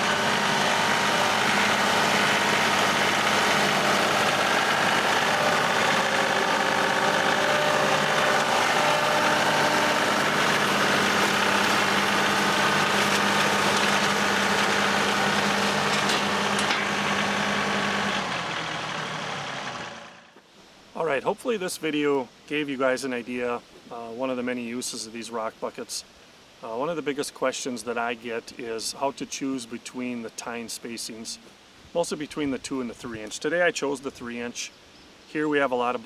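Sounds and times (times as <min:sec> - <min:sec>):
tractor diesel engine running: 0:00.0 - 0:20.3.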